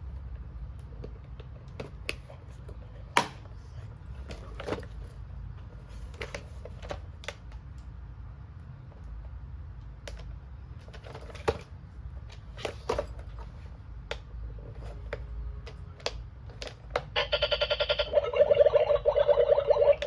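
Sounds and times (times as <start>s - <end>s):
electronic toy ringing trill: 17.2s - 20.0s.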